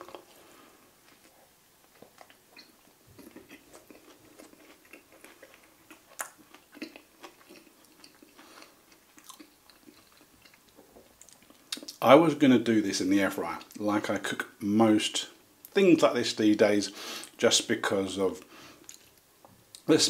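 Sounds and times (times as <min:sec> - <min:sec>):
person chewing: 0:00.0 - 0:12.0, 0:18.8 - 0:19.8.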